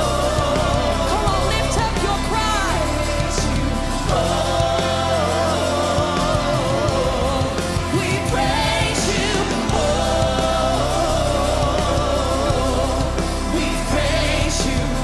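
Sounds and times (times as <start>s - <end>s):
worship song with band: 0.0s - 15.0s.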